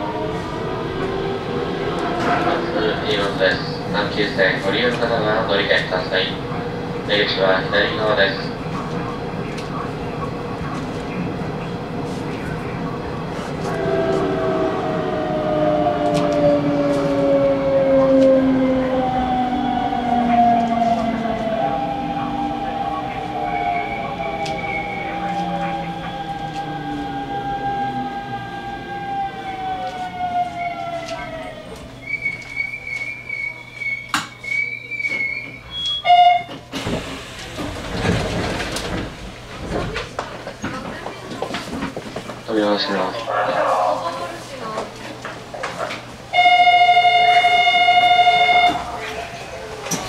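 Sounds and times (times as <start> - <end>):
train traction motors whining: 9.0 - 40.1
wheel and rail noise: 36.5 - 46.3
loud buzzer tone: 46.4 - 48.8.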